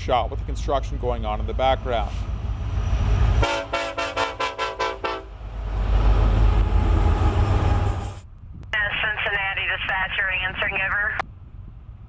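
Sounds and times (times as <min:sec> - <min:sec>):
train rumble: 0:00.0 - 0:12.0
locomotive air horn: 0:03.4 - 0:05.4.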